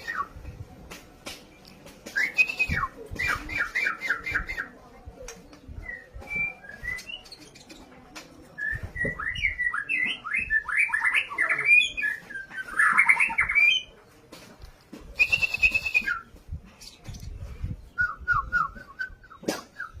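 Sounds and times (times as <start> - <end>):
bird singing whistled notes: 2.0 - 7.9, 8.6 - 13.9, 15.2 - 17.0.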